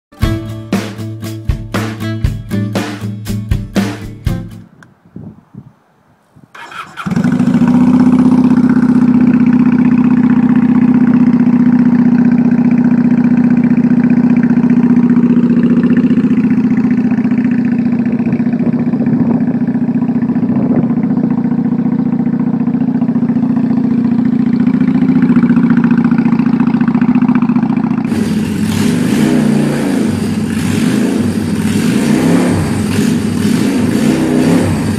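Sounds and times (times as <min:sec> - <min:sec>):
motorcycle engine running: 0:06.6 - 0:34.9.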